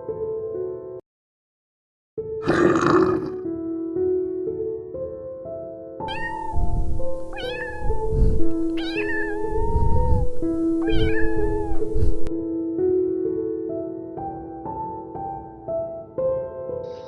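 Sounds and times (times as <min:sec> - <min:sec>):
soft piano music: 0:00.0 - 0:01.0, 0:03.4 - 0:17.0
cat meowing: 0:06.1 - 0:12.3.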